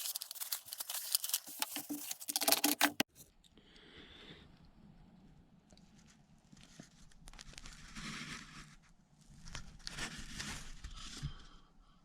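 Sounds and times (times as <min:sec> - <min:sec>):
scrubbing and rustling: 0:00.0 - 0:03.1.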